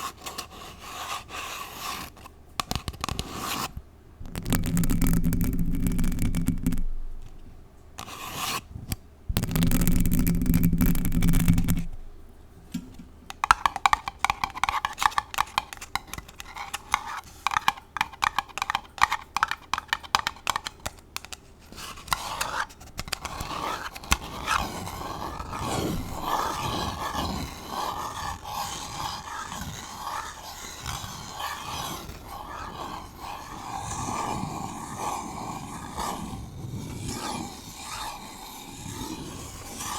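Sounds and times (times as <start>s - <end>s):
false nails scratching paper cup: 0.0s - 7.4s, 8.0s - 12.1s, 13.3s - 39.9s
nails scratching microphone: 2.0s - 12.2s, 21.7s - 39.9s.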